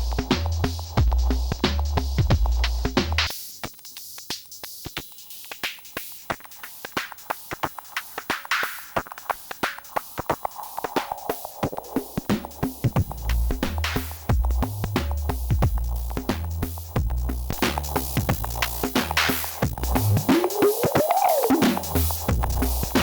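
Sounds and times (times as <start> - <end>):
fast drum machine beat: 0.0 - 23.0
deep bass line: 13.0 - 20.9, 21.6 - 23.0
filter resonance sweep: 13.1 - 23.0.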